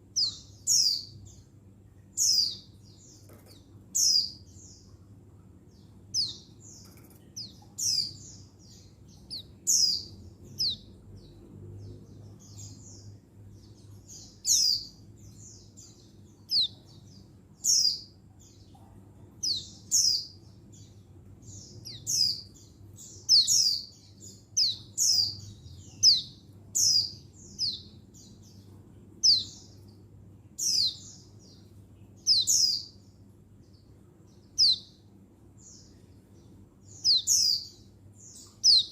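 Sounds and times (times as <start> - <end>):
bird chirping high sharp calls: 21.6 - 24.0, 24.6 - 27.9, 34.6 - 34.9, 36.9 - 37.8, 38.4 - 38.9.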